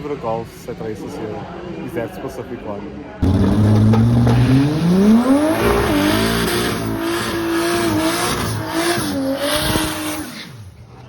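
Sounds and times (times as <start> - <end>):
race car engine accelerating: 3.2 - 10.8.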